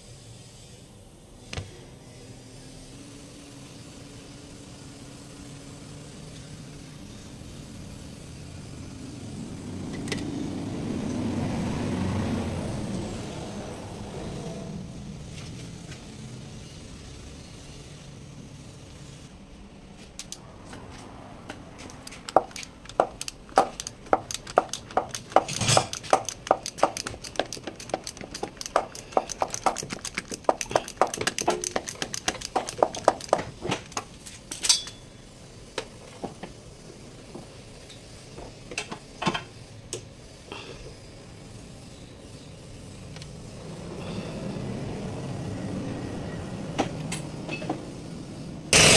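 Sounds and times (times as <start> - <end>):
metal tools clinking: 22.2 - 33.4, 34.5 - 35.1.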